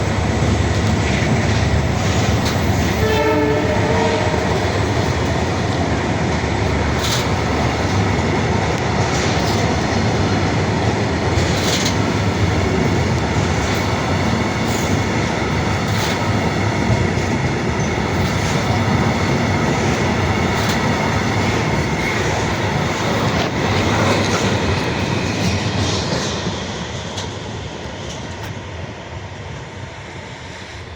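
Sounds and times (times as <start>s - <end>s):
freight train wheels rumbling: 0.0s - 30.9s
clicks at rail joints: 6.9s - 26.3s.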